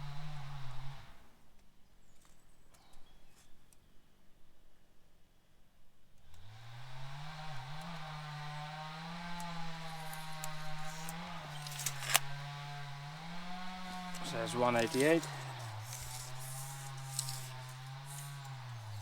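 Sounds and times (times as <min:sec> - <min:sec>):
motor running: 0:07.1 - 0:19.0.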